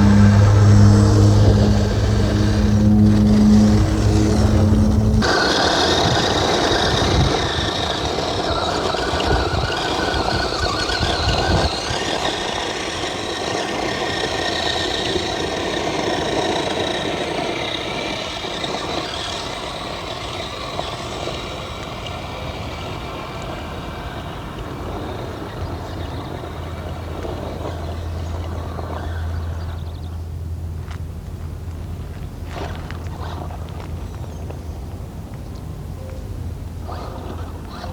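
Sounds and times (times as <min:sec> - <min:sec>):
low steady hum: 0:00.0 - 0:05.3
toy truck motor whining: 0:00.0 - 0:30.1, 0:36.8 - 0:37.9.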